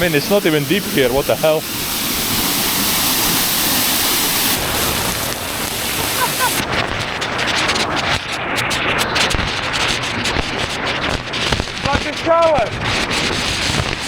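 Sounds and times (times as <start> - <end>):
waterfall rushing into pool: 0.0 - 9.3.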